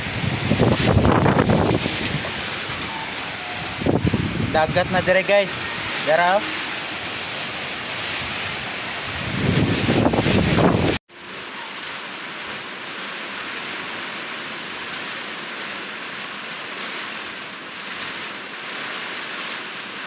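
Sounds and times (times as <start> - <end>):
wind buffeting microphone: 0.0 - 11.0
heavy rain hissing: 0.0 - 20.0.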